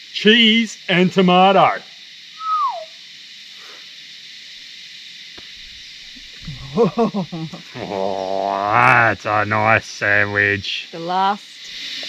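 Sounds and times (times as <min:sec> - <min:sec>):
faint hiss: 0:00.0 - 0:12.0
whistled note sliding down: 0:02.4 - 0:02.9
person murmuring: 0:06.4 - 0:10.6.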